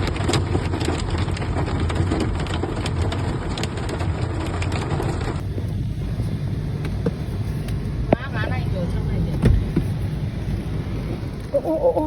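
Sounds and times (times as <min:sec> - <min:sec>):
hail pelting down: 0:00.0 - 0:06.7.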